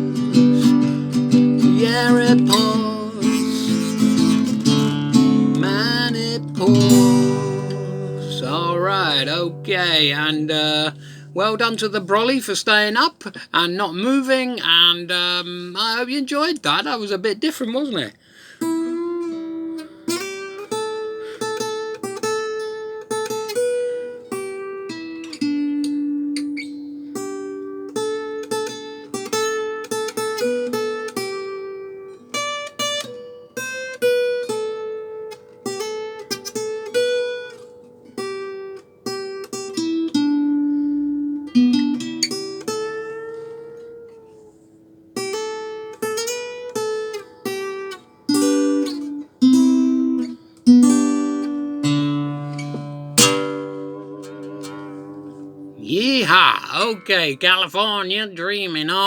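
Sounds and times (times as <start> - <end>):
acoustic guitar: 0.0 - 16.8, 17.5 - 59.0.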